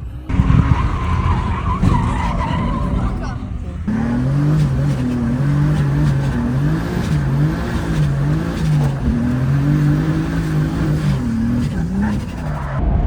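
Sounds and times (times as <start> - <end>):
car engine revving: 0.3 - 12.8.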